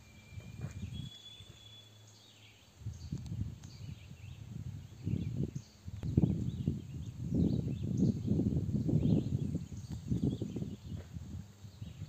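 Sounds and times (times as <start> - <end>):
songbird whistling notes: 0.0 - 3.2
faint bird chirps: 0.0 - 8.3.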